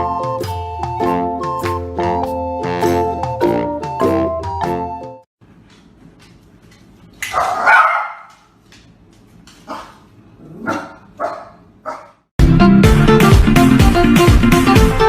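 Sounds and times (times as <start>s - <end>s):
dog barking: 7.3s - 8.5s, 9.7s - 12.2s.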